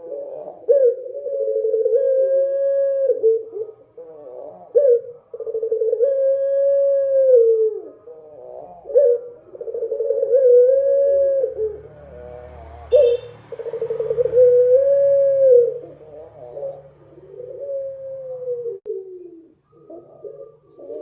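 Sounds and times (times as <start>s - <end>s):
dove cooing: 0.0s - 21.0s.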